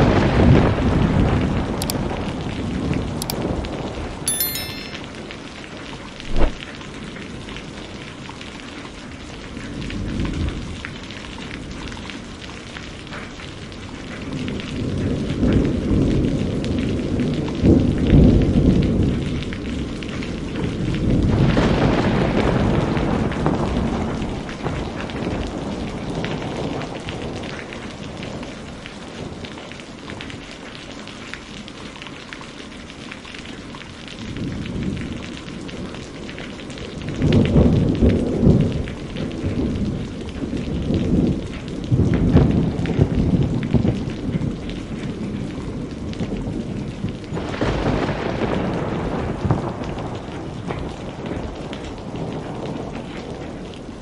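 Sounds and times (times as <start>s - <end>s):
steady rain falling: 0.0s - 3.8s, 6.2s - 54.0s
rolling thunder: 47.4s - 53.4s.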